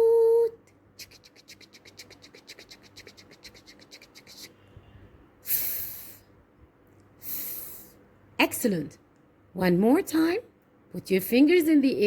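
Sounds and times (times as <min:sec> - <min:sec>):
short hisses: 0:05.4 - 0:06.3.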